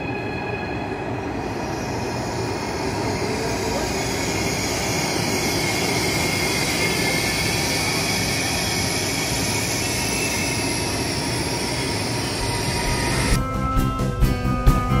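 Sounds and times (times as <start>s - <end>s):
train wheels and running gear: 1.0s - 13.4s.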